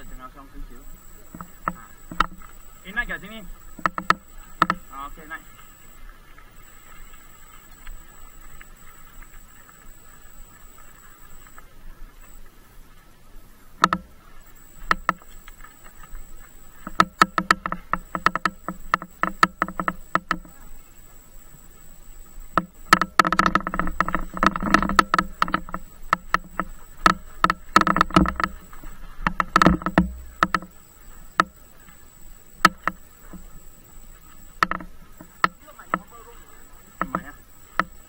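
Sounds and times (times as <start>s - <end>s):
mountain bike rattling on rough trail: 0.0s - 11.6s, 13.8s - 21.2s, 22.4s - 38.0s.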